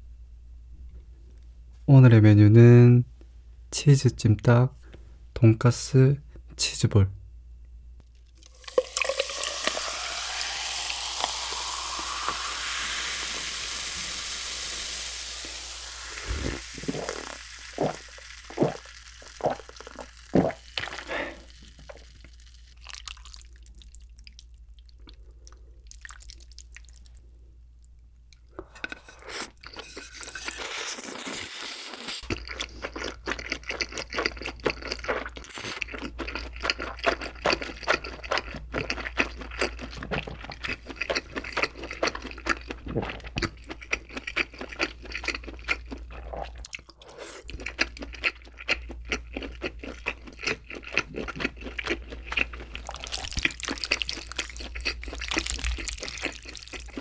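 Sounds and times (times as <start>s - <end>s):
slurping: 8.4s - 23.4s, 28.8s - 39.4s, 40.0s - 57.0s
wet chewing with smacks: 32.3s - 57.0s.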